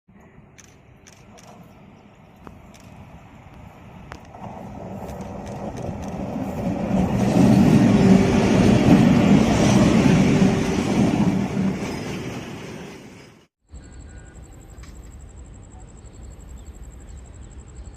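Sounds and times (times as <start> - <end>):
train wheels rumbling on rails: 0.6 - 13.5.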